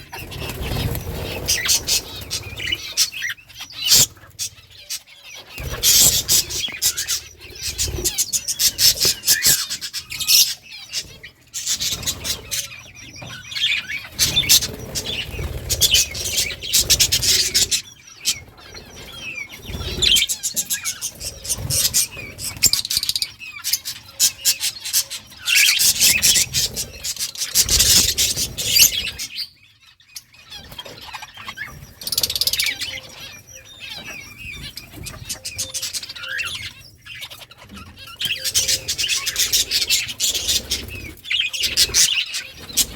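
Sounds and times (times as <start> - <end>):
budgies chirping and chattering: 0.0 - 42.9.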